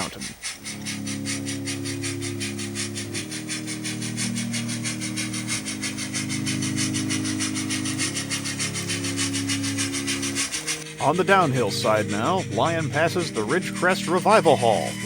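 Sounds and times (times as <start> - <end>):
model train steam chuffs: 0.0 - 15.0
steady low drone: 0.0 - 15.0.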